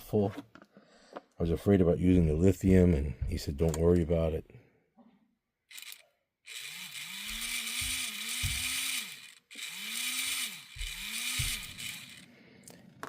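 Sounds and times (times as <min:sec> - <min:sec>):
model locomotive motor whirring: 0:05.7 - 0:12.3.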